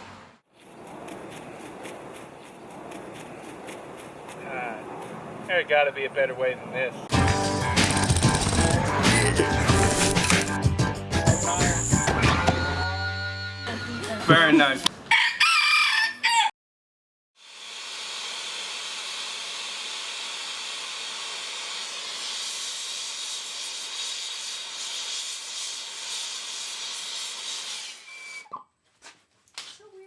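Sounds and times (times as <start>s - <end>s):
guitar music: 7.1s - 14.2s.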